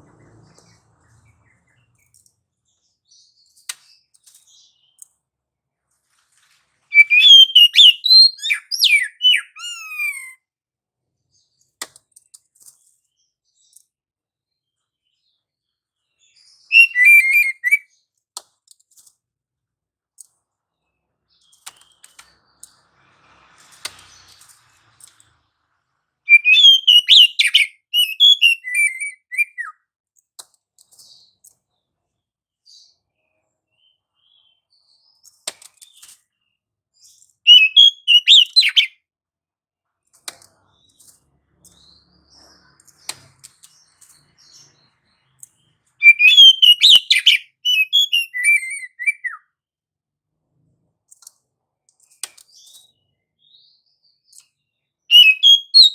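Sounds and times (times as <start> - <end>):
bird singing whistled phrases: 6.9 - 10.4, 16.7 - 17.9, 26.3 - 29.8, 37.5 - 38.9, 46.0 - 49.4, 55.1 - 55.9
faint clicks: 21.4 - 22.8.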